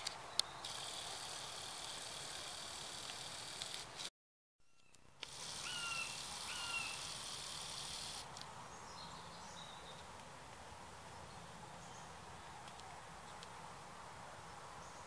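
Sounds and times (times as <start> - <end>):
high steady hiss: 0.0 - 4.1, 5.0 - 12.4
open-country background noise: 0.0 - 15.0
short bird calls: 5.6 - 7.1.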